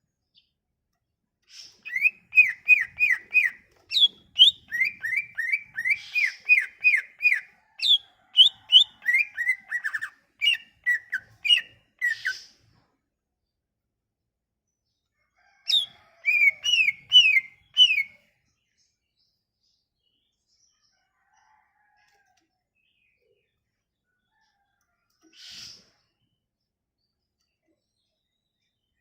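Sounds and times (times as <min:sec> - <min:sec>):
bird singing whistled notes: 0:01.7 - 0:12.5, 0:15.7 - 0:18.2.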